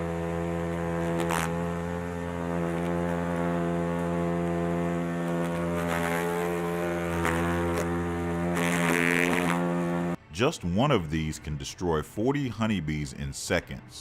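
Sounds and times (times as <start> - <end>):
hornets buzzing: 0.0 - 10.5.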